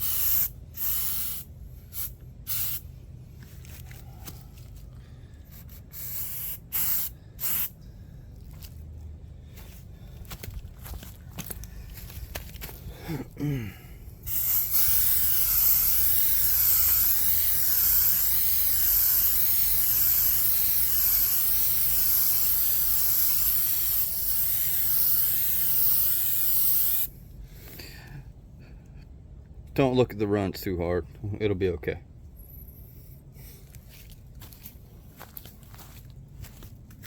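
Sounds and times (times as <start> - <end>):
aerosol spray can hissing: 0.0 - 2.8, 5.6 - 7.7, 14.3 - 27.1.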